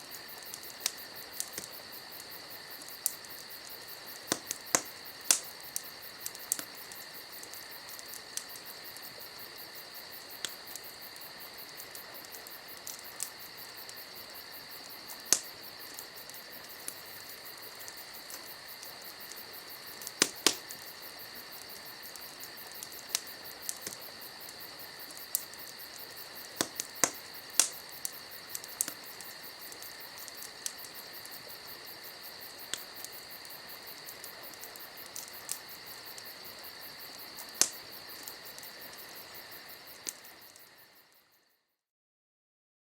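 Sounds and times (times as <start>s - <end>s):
campfire crackling and popping: 0.0s - 41.2s
crickets trilling: 0.0s - 41.6s.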